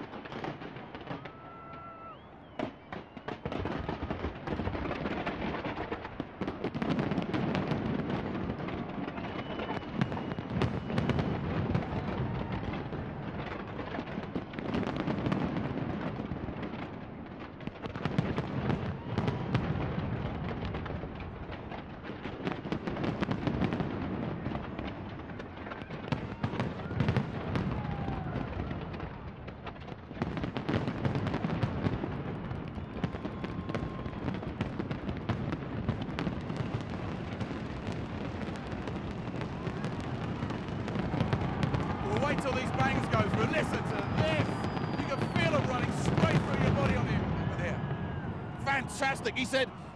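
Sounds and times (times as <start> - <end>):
fireworks bangs and crackling: 0.0 - 49.9
firework whistles: 1.0 - 4.4, 8.7 - 12.7, 32.4 - 35.0, 38.2 - 49.9.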